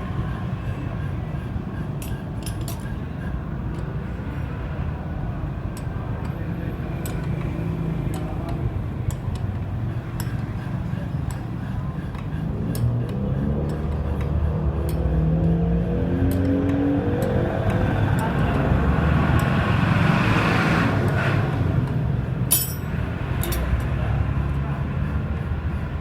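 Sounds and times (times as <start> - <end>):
metal tools clinking: 22.5 - 23.9.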